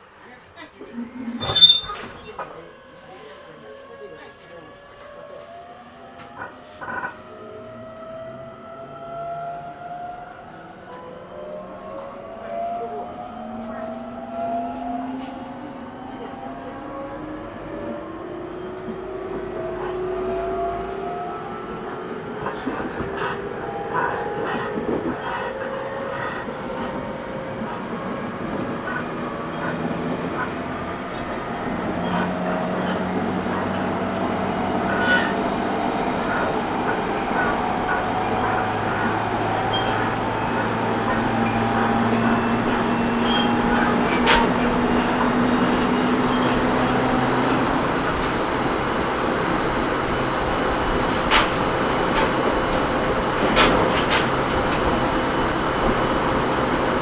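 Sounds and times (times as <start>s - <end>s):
train rolling noise: 0.0s - 57.0s
wheels rumbling on rails: 0.0s - 57.0s
wheels clicking over rail joints: 48.0s - 57.0s.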